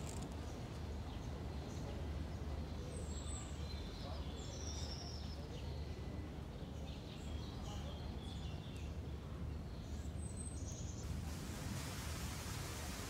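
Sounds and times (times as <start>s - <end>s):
even hiss: 11.1s - 13.0s.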